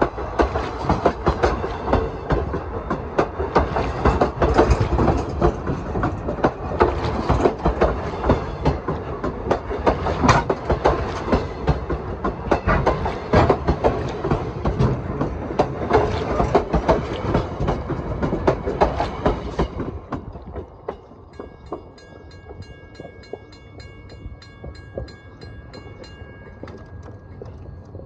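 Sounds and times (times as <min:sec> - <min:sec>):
train wheels clattering over rail joints: 0:00.0 - 0:28.0
steady high ringing tone with ticks: 0:20.3 - 0:28.0.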